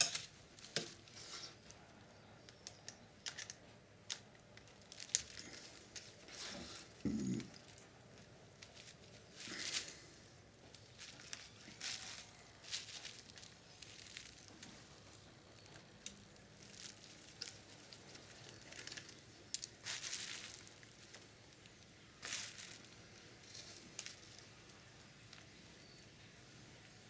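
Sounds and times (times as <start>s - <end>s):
tools scraping and rustling: 0.0s - 1.6s.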